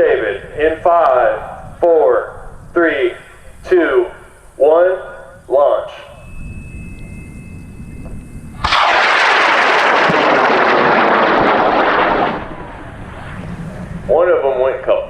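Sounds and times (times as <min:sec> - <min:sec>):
low rumble: 0:06.1 - 0:14.8
rocket motor roar: 0:08.0 - 0:14.1.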